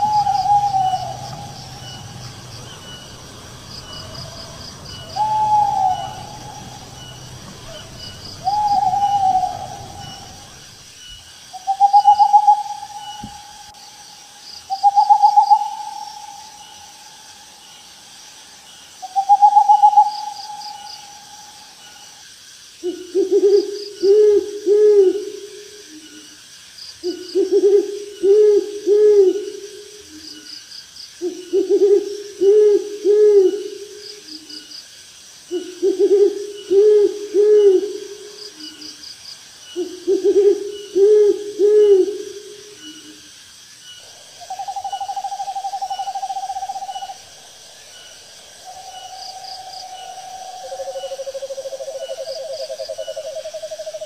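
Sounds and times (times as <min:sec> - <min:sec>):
owl hooting: 0:00.0 - 0:10.9, 0:11.5 - 0:17.4, 0:19.0 - 0:22.2, 0:35.5 - 0:38.9, 0:39.7 - 0:43.2, 0:44.0 - 0:54.0
night insects chirping: 0:00.0 - 0:54.0.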